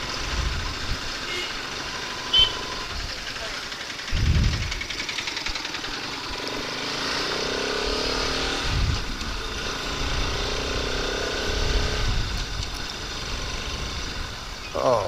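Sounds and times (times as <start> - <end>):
wind buffeting microphone: 0.0 - 1.2, 4.0 - 5.6, 8.1 - 14.6
motorcycle engine running: 0.0 - 15.0.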